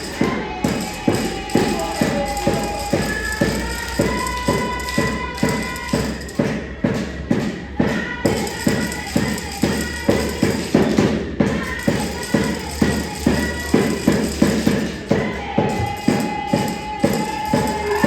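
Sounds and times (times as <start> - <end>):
drum beaten steadily: 0.0 - 18.0
sustained high tone: 17.5 - 18.0.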